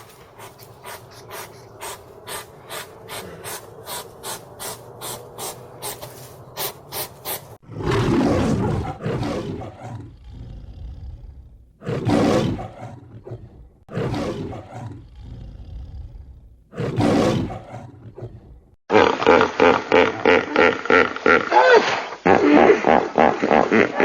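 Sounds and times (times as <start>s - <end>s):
animal call of pitched pulses: 0.0s - 7.4s
low growling: 0.0s - 18.8s
large animal roaring: 1.0s - 6.8s, 7.6s - 18.8s.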